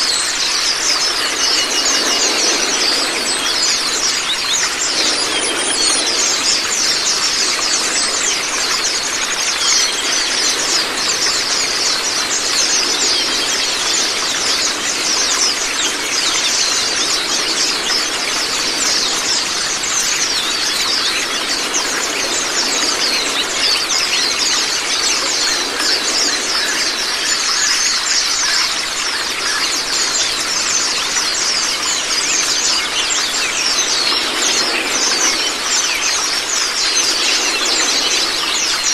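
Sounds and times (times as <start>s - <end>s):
birds chirping and twittering: 0.0s - 38.9s
running water rushing: 0.0s - 38.9s.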